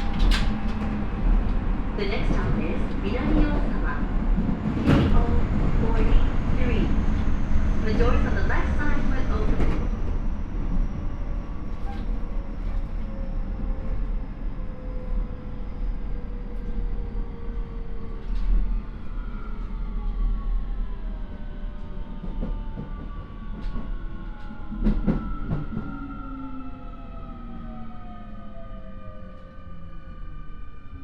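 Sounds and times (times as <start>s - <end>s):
wheel and rail rumble: 0.0s - 20.2s.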